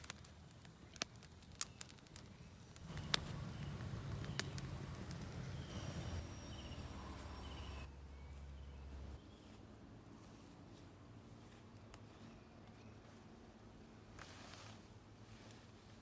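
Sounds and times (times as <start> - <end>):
sharp clicks and snaps: 0.0 - 3.3.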